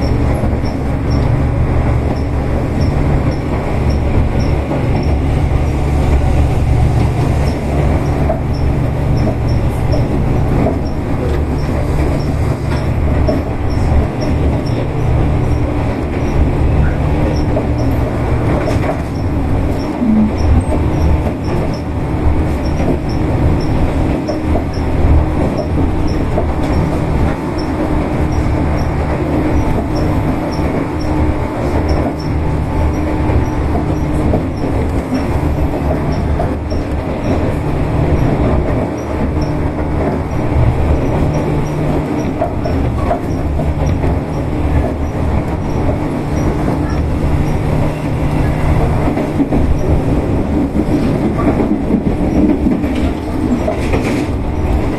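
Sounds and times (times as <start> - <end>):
train motor hum: 0.0 - 54.9
train wheels rumbling on rail: 0.0 - 54.9.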